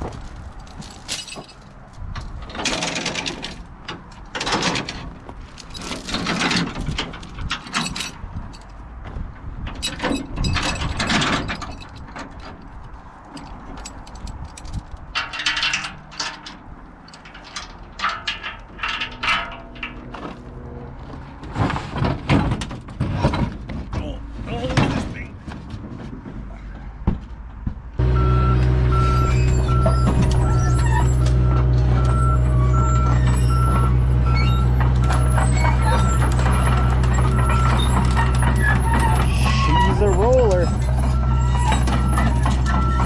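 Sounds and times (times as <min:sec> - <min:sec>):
metal clanking and rattling: 0:00.0 - 0:24.0, 0:28.4 - 0:43.0
faint low engine hum: 0:28.0 - 0:43.0.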